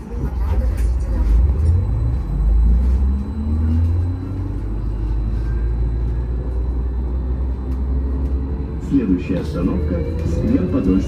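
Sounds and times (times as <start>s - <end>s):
trolleybus interior rumble: 0.0s - 11.0s.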